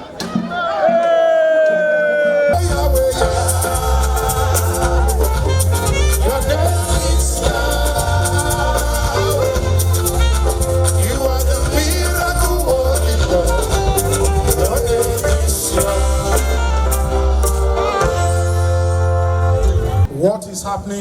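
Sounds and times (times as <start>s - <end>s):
person singing: 2.1s - 18.6s
pulsing bass line: 2.6s - 20.1s.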